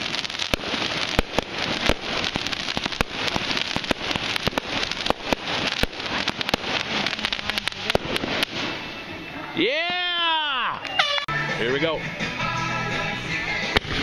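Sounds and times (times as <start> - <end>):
sharp firework pops: 0.0 - 8.9, 13.6 - 14.0
fireworks crackling: 0.0 - 14.0.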